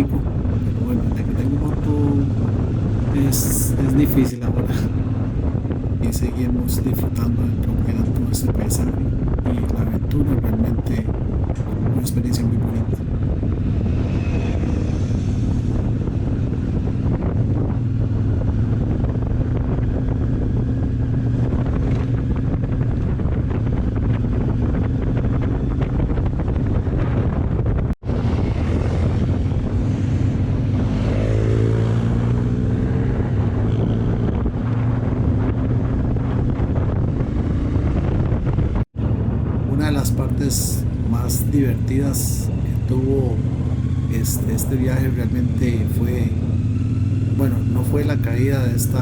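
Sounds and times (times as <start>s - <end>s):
wind buffeting microphone: 0.0s - 49.0s
motorcycle engine running: 45.3s - 47.8s.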